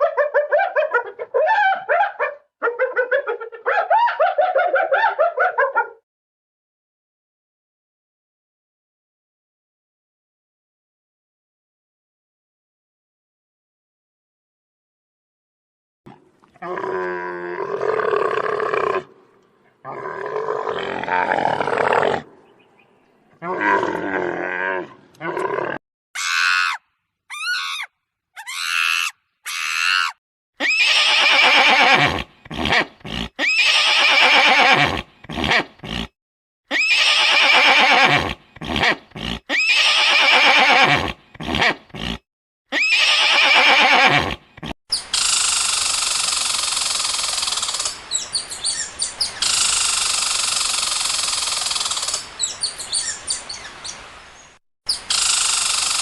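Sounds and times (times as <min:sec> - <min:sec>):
animal grunting calls: 0:16.1 - 0:22.6
short high-pitched animal cries: 0:26.2 - 0:32.1, 0:33.4 - 0:34.8, 0:36.7 - 0:38.2, 0:39.5 - 0:41.0, 0:42.7 - 0:44.3.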